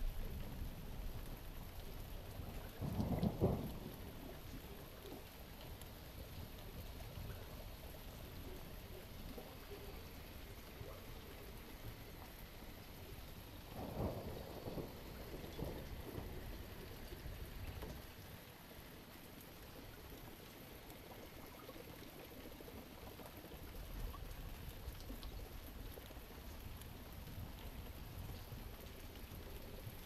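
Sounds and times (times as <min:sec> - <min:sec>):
steady rain: 0:00.0 - 0:30.0
low thunder rumble: 0:02.2 - 0:04.8, 0:09.8 - 0:18.2.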